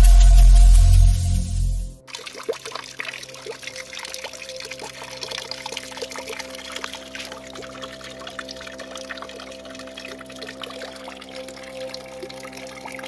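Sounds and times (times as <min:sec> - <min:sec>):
loud music: 0:00.0 - 0:02.0
water pouring down fountain: 0:02.0 - 0:13.0
water splashes and drips: 0:02.0 - 0:13.0.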